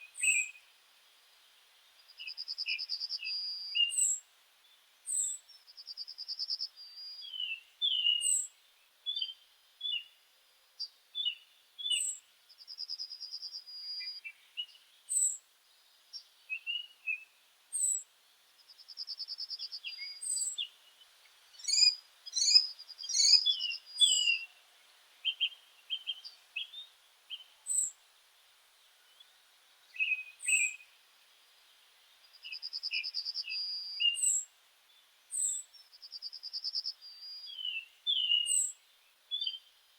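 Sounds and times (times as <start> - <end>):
meadow birds singing and calling: 0.0 - 10.2, 10.8 - 39.9.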